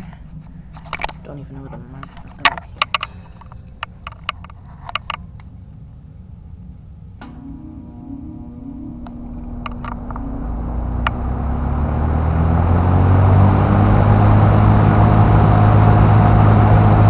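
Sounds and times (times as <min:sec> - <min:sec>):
box fan motor hum and air rush: 0:00.0 - 0:17.0.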